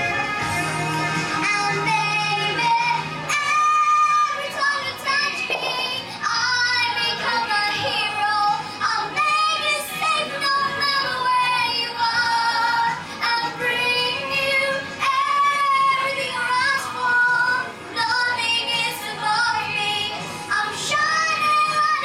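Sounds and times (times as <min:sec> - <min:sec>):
instrumental accompaniment: 0:00.0 - 0:06.8
girl singing: 0:01.4 - 0:22.0.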